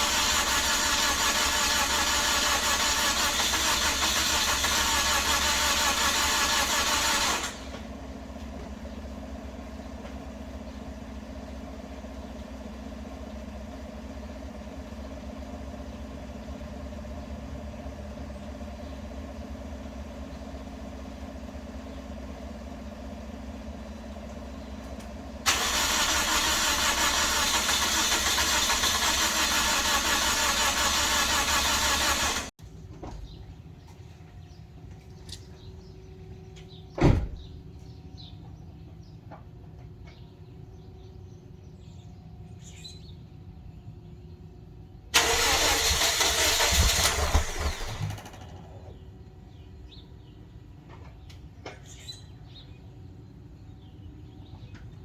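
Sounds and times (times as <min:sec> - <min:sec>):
car engine cranking: 0:00.0 - 0:07.9, 0:25.5 - 0:32.5, 0:45.2 - 0:49.0.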